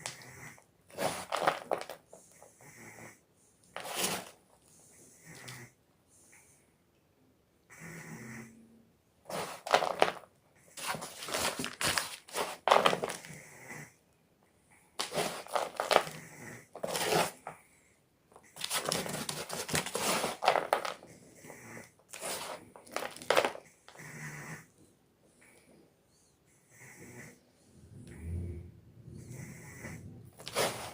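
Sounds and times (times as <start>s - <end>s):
chalk block crunching: 15.0s - 16.2s.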